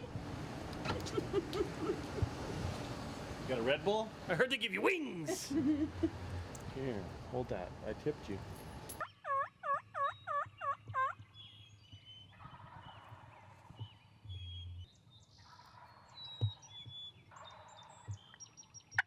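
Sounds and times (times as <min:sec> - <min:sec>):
turkey gobbling: 0:00.9 - 0:02.9, 0:09.0 - 0:11.3, 0:12.4 - 0:13.8, 0:17.3 - 0:18.0
small birds chirping: 0:09.0 - 0:19.0.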